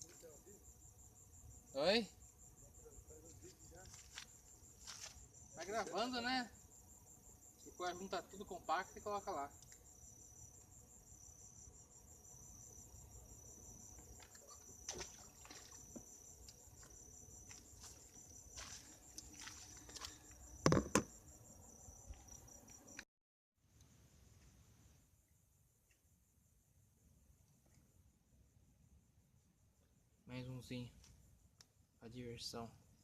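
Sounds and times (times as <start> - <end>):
crickets chirping: 0.0 - 23.1, 23.7 - 33.0
knocks: 20.6 - 21.1.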